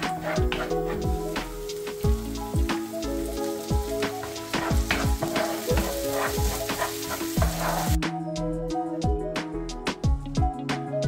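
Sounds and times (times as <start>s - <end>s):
food sizzling in a frying pan: 0.0s - 8.0s
wooden spoon stirring: 0.0s - 8.0s
background music with beat: 0.0s - 11.0s.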